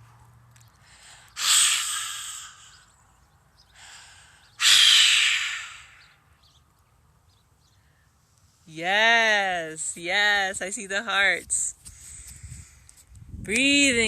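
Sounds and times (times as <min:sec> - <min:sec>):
person exhaling hard: 0:00.9 - 0:02.9, 0:03.8 - 0:06.2.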